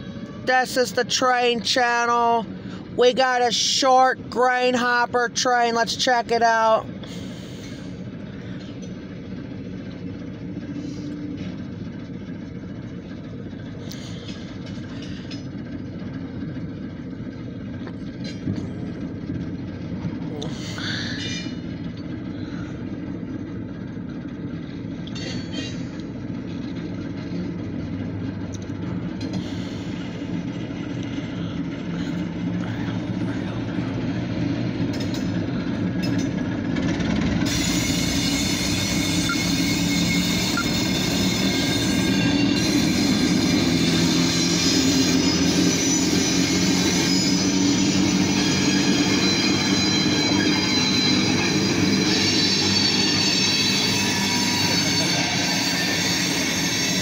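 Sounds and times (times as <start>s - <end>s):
locomotive engine hum: 0.0s - 57.0s
train rail noise: 0.0s - 57.0s
steel wheels squealing on rail: 20.5s - 23.0s, 24.6s - 27.5s, 29.1s - 57.0s.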